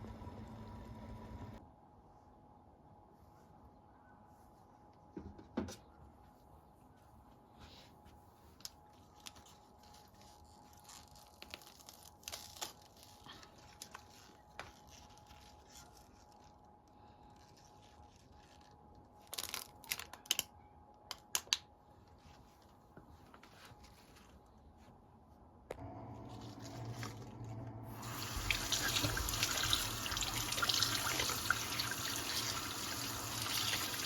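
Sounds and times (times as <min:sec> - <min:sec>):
small clicks and rustles: 0:08.5 - 0:20.5.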